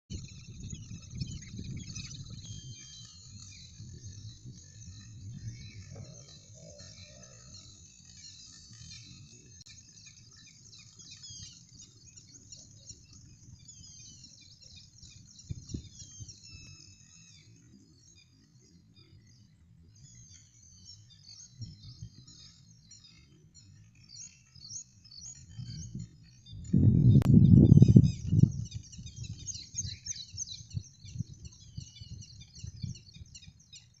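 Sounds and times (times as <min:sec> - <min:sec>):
small birds chirping: 0:00.1 - 0:34.0
low rumble: 0:26.5 - 0:28.6.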